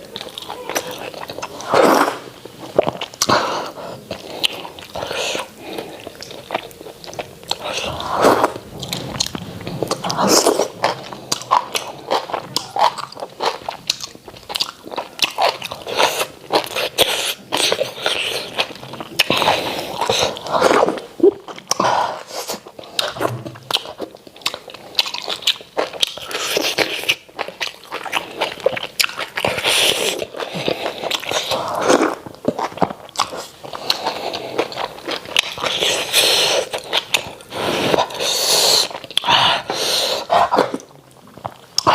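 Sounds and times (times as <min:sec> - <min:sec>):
wet chewing and mouth smacking: 0:00.0 - 0:41.9.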